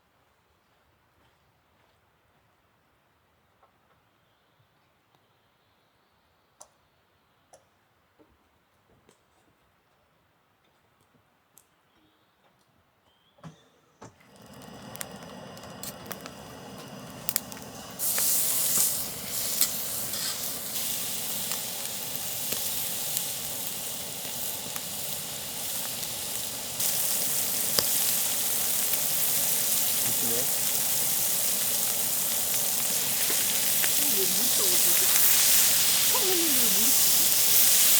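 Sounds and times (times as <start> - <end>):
food sizzling in a pan: 14.3 - 37.9.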